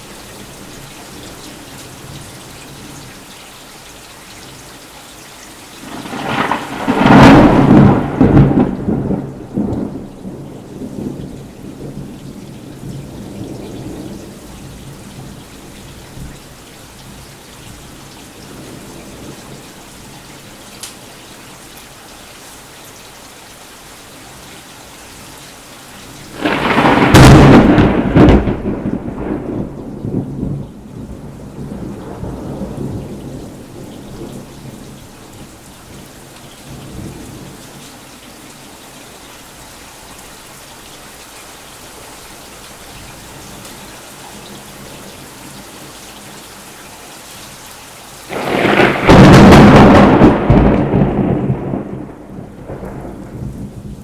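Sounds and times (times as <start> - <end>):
steady rain falling: 0.0 - 54.0
loud thunderclap and rumbling: 5.8 - 14.4, 26.3 - 34.8, 48.3 - 54.0.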